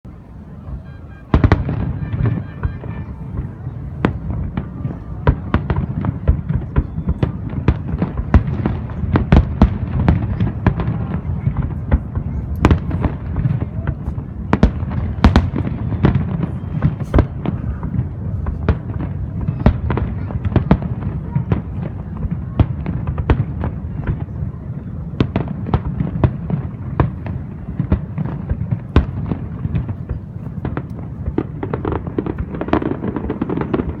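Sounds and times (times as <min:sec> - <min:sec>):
low rumble of explosions: 0:00.1 - 0:34.0
firework bangs: 0:00.2 - 0:34.0.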